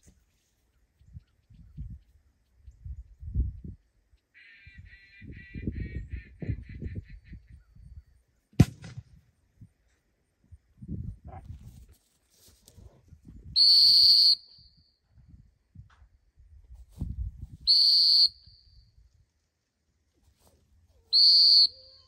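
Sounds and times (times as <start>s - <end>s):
dog whistle blasts: 13.6s - 14.7s, 17.7s - 18.7s, 21.1s - 22.0s.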